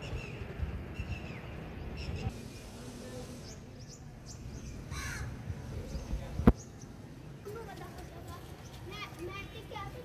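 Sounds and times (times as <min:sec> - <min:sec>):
brief hiss: 0:02.3 - 0:03.8.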